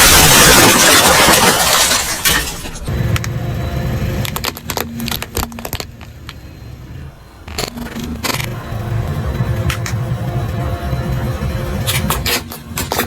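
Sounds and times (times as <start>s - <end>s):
objects cracking under tyre: 4.2s - 6.4s.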